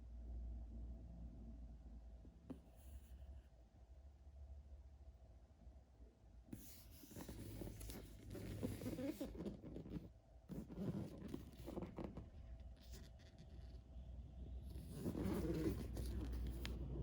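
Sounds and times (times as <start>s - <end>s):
rustling and scraping handling noise: 6.6s - 17.0s.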